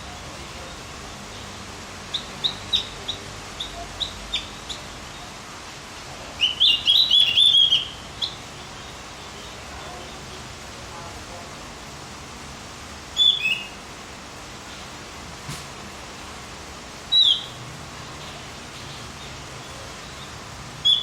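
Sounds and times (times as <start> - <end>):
steady hiss: 0.0 - 21.0
bird rapid chattering: 6.4 - 10.4, 13.2 - 13.8, 17.1 - 17.6.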